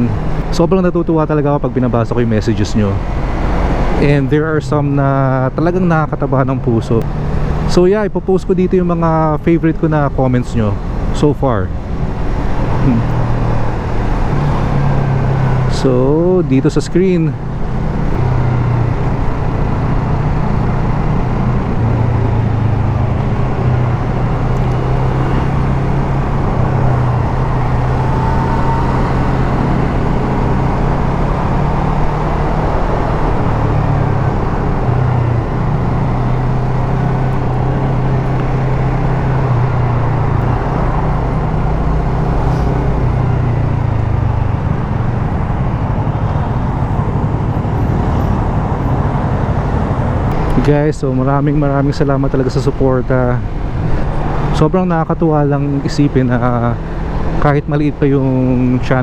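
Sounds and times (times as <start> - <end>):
traffic: 0.0 - 59.0
wind: 0.0 - 59.0
motorcycle engine running: 11.8 - 51.6.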